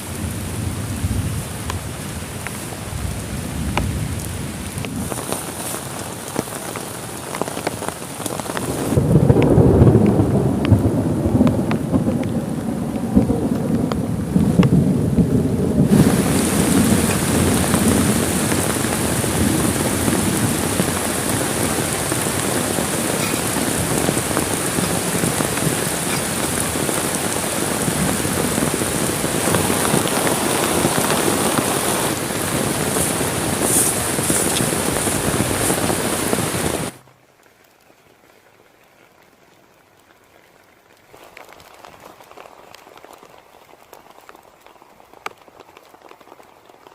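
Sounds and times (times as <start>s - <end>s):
heavy rain: 0.0s - 46.9s
low rumble of thunder: 8.8s - 35.7s.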